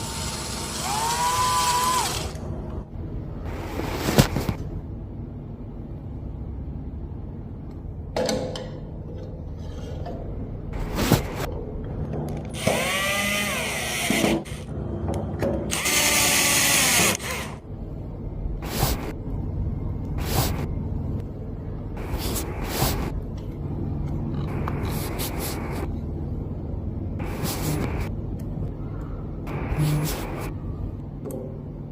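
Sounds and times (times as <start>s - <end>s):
handheld power tool running: 0.0s - 2.4s, 12.6s - 14.7s, 15.7s - 17.6s
steady low hum: 1.9s - 31.9s.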